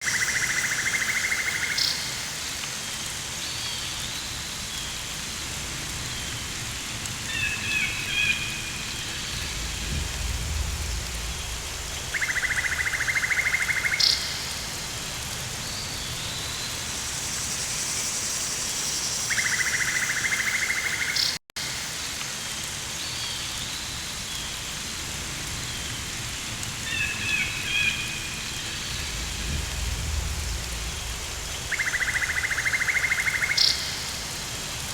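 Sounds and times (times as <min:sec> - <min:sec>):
rain hissing: 0:00.0 - 0:34.9
low rumble: 0:09.2 - 0:12.1, 0:28.6 - 0:31.7.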